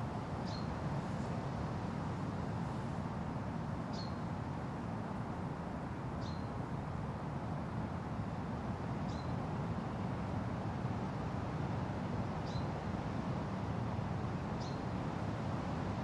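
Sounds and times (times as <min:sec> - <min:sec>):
wind through forest: 0:00.0 - 0:16.0
small bird chirping: 0:00.4 - 0:00.7, 0:14.6 - 0:14.8.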